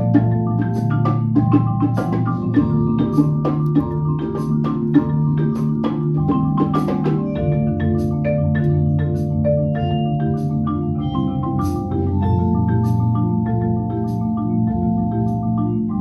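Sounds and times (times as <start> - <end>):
wood block clicks: 0.0 - 9.6
marimba ensemble playing: 0.0 - 16.0.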